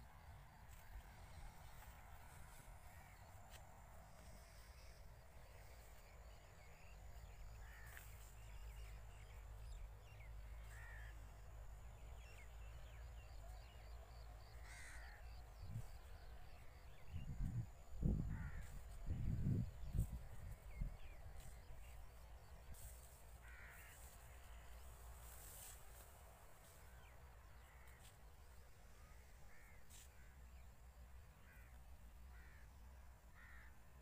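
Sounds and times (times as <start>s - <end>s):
wind rumble on microphone: 16.8s - 21.8s.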